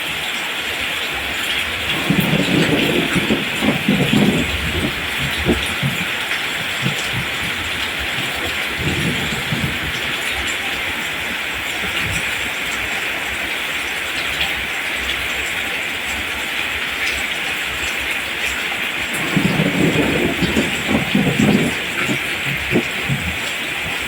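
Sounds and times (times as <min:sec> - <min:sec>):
steady rain hissing: 0:00.0 - 0:24.0
low uneven rumble: 0:01.8 - 0:12.4, 0:19.0 - 0:24.0.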